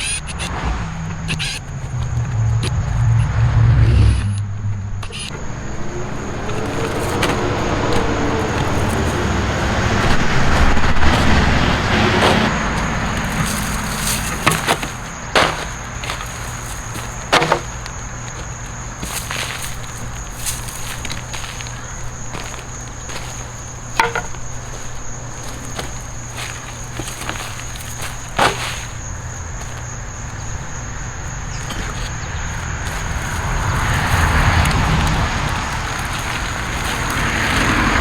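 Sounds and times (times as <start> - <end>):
vehicle passing by: 0.3 - 23.8, 24.7 - 38.0
sharp knocks: 12.2 - 18.0, 23.2 - 24.5.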